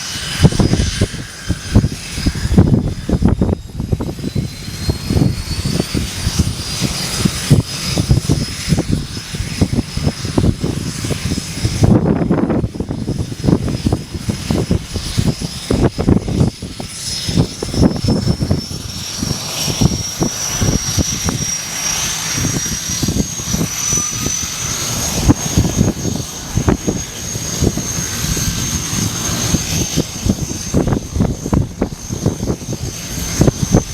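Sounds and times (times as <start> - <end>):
high turbine whine: 0.0 - 33.9
low rumble of propellers: 0.0 - 33.9.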